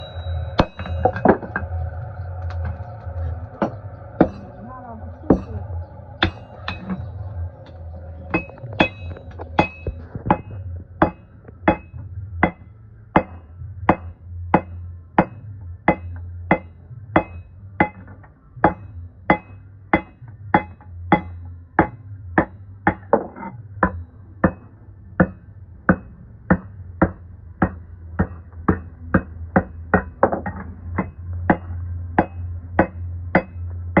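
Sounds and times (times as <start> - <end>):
hammer ringing on metal: 0.0 - 1.8, 3.6 - 4.7, 5.3 - 7.2, 8.3 - 12.6, 13.2 - 23.1, 31.0 - 34.0
steady low hum: 0.0 - 34.0.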